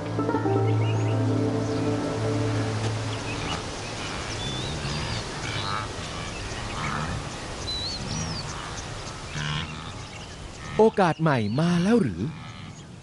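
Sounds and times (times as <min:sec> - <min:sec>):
music cue: 0:00.0 - 0:04.3.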